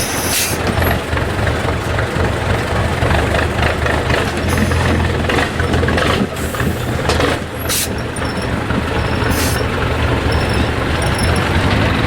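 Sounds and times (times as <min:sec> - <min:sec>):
diesel truck engine running: 0:00.0 - 0:12.0
air release hisses: 0:09.3 - 0:09.7.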